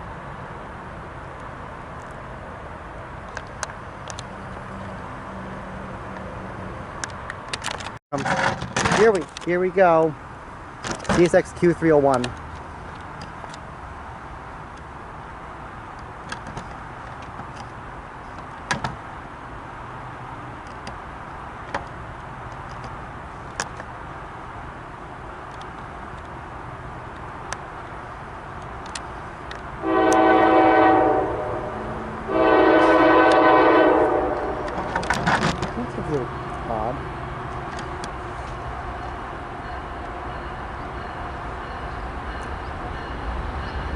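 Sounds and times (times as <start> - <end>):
steady background noise: 0.0 - 43.9
sharp clicks: 12.1 - 13.6
locomotive air horn blasts: 29.8 - 34.8.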